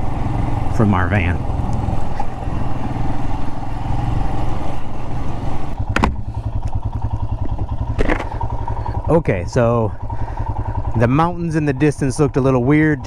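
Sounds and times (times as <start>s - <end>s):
motorcycle engine running: 0.0s - 13.0s
tyres over rocky gravel: 6.3s - 9.0s.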